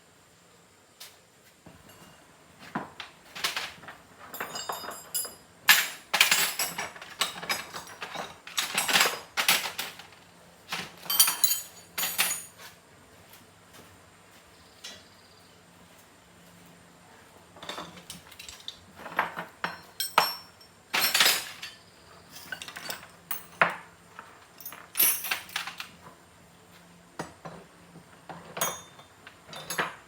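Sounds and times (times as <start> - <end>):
metal tools clinking and scraping: 3.4 - 12.8, 17.6 - 26.0, 28.4 - 30.0.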